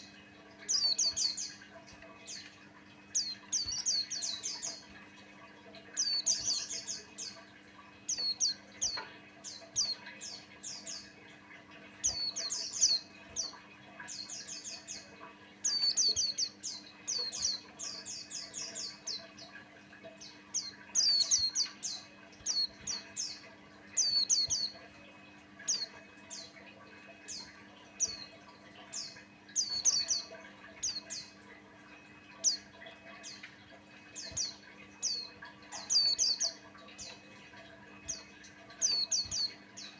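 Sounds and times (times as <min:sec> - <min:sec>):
bird high twittering: 0:12.0 - 0:13.6, 0:38.0 - 0:39.9.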